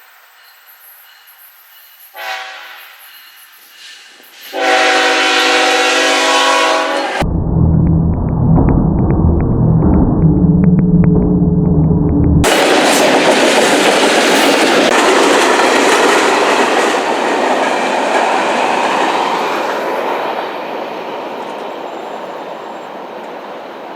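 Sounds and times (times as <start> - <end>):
train wheels clattering on track: 12.4 - 23.9.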